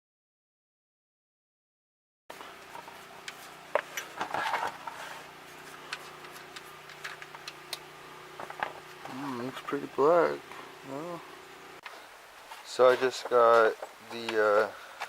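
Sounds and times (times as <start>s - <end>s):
faint steady hum: 2.3s - 15.0s
rustling scrape: 2.8s - 7.2s.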